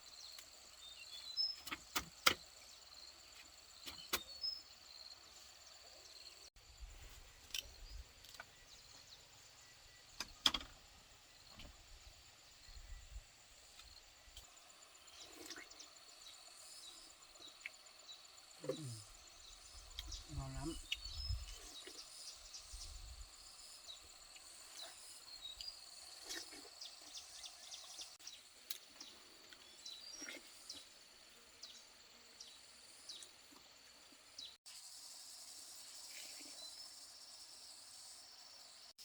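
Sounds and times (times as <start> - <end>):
sharp clicks and knocks: 10.2 - 10.8.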